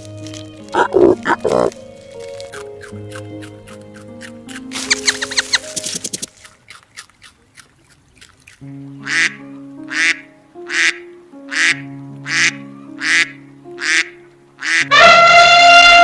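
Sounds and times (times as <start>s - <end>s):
background music with held notes: 0.0s - 6.7s, 8.5s - 16.0s
duck quacking: 9.0s - 16.0s.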